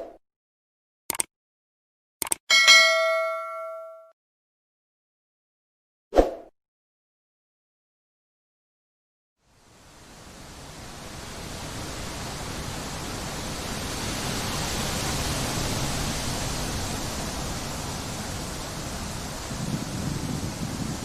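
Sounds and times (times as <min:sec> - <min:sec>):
wind blowing through trees: 0:09.4 - 0:21.0.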